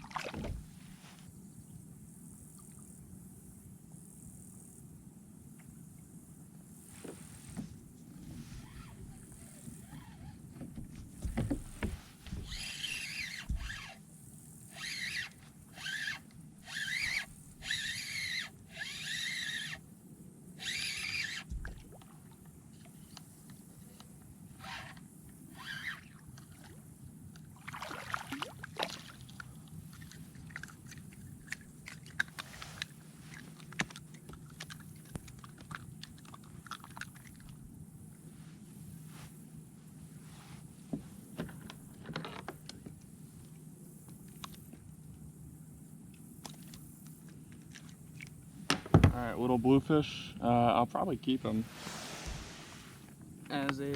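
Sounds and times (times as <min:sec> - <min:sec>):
fishing reel whirring: 0:12.4 - 0:14.0, 0:14.6 - 0:19.9, 0:20.6 - 0:21.5, 0:24.6 - 0:26.2.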